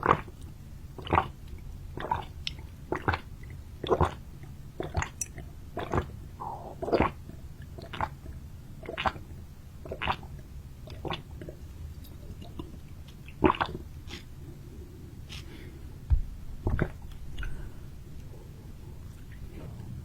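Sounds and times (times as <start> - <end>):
wet mouth sounds: 0.0 - 14.4, 16.6 - 17.7
person chewing: 10.9 - 14.3.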